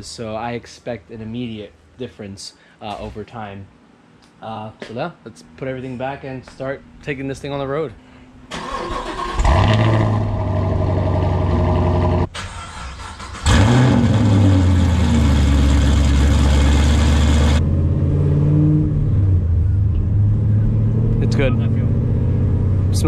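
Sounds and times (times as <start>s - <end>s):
car engine starting and revving: 8.5s - 23.0s
car engine idling: 13.4s - 17.6s.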